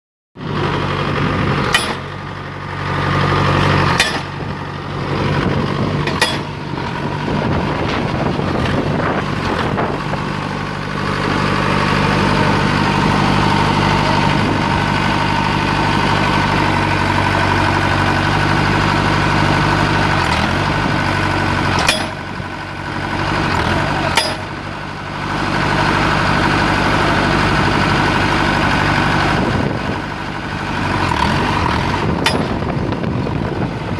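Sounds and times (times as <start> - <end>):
pile driver engine running: 0.4 - 33.9
sharp metallic clicks: 1.7 - 2.2, 3.9 - 4.5, 6.0 - 6.6, 21.8 - 22.3, 24.1 - 24.5, 32.2 - 32.7.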